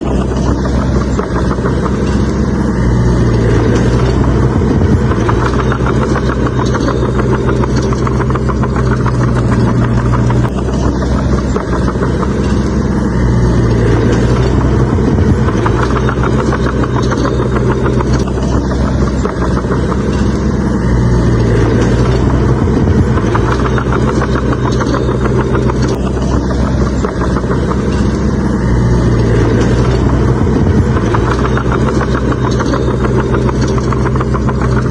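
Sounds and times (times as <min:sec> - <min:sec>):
bulldozer diesel engine working: 0:00.0 - 0:34.9
fast rattle: 0:00.0 - 0:34.9.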